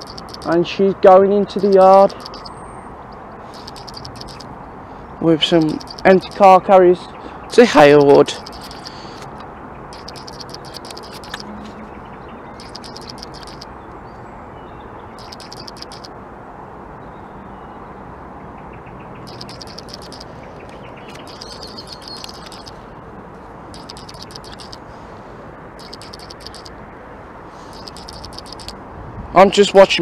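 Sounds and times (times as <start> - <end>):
bird chirping: 0.0 - 0.6, 1.6 - 4.4, 5.5 - 16.1, 18.6 - 22.9, 23.7 - 24.8, 25.8 - 26.7, 27.6 - 28.8.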